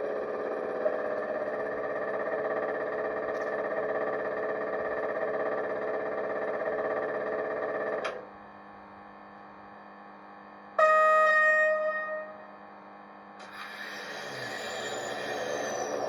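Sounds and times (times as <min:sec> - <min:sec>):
locomotive horn: 0:10.8 - 0:12.5
steady electrical tone: 0:10.8 - 0:16.0
hiss: 0:13.4 - 0:16.0.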